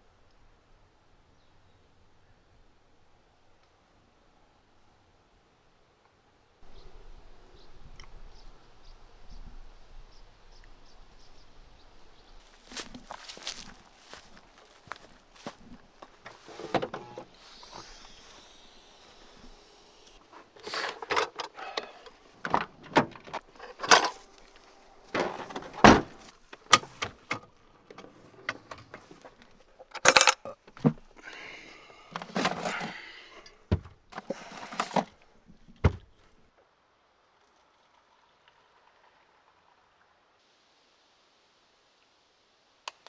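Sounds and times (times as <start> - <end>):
rustling: 12.3 - 27.3
handling knocks and clicks: 20.8 - 31.1.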